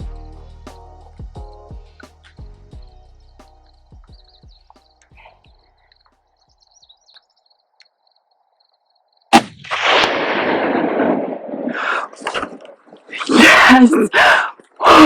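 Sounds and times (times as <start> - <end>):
rifle shot: 9.3 - 11.7.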